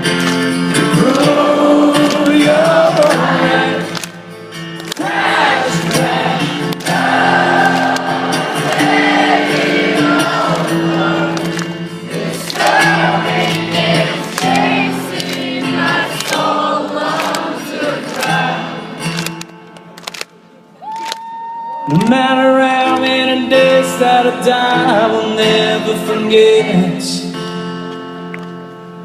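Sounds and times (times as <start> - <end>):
live rock song: 0.0 - 20.2, 21.9 - 28.9
choir-like singing: 0.9 - 4.0, 5.0 - 19.0.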